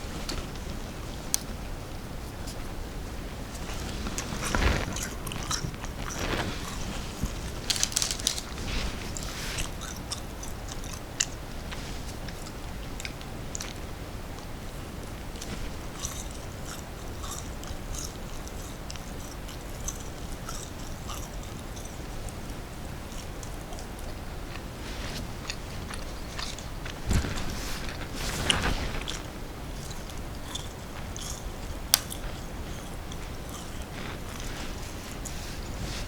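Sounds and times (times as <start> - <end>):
person chewing crunchy snack: 3.7 - 11.1.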